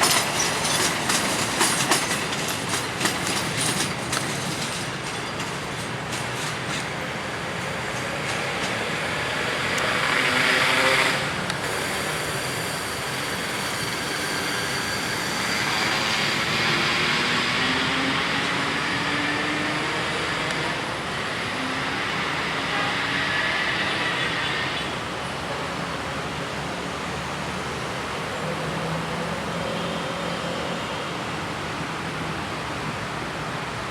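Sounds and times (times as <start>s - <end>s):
train wheels rumbling on track: 0.0s - 33.9s.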